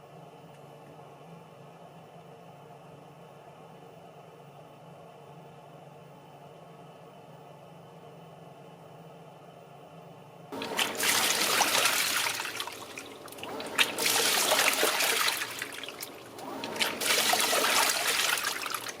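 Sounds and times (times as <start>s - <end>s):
water splashing in washing machine: 10.6s - 19.0s.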